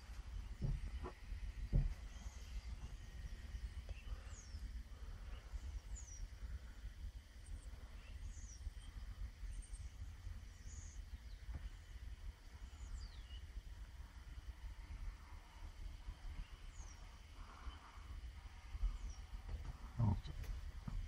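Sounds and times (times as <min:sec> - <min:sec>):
low steady rumble: 0:00.0 - 0:21.0
small bird chirping: 0:00.3 - 0:06.4, 0:07.4 - 0:12.0, 0:12.6 - 0:13.6, 0:16.3 - 0:18.0, 0:18.6 - 0:20.6.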